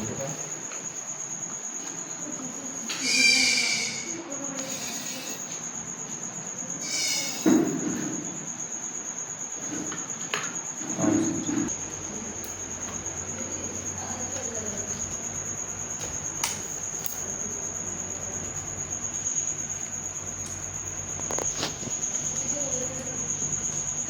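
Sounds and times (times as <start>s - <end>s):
shrill high-pitched tone: 3.0s - 5.4s.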